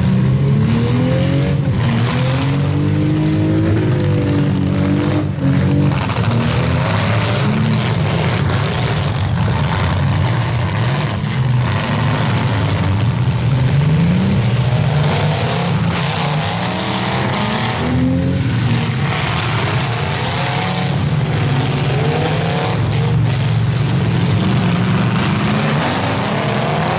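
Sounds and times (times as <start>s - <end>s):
car engines revving: 0.0s - 26.9s.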